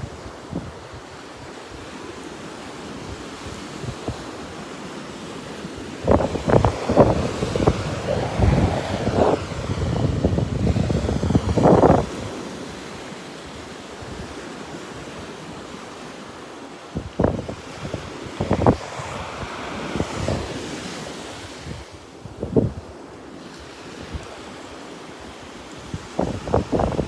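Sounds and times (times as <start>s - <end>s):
wind on microphone: 0.0s - 1.8s, 3.0s - 4.8s, 5.4s - 14.4s, 16.9s - 23.0s, 25.8s - 27.0s
ocean surf washing onto beach: 0.0s - 27.0s.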